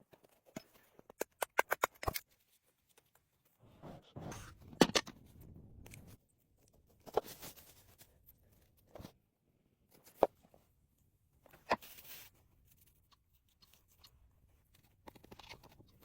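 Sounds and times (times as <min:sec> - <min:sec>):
rustling: 0:02.4 - 0:09.2.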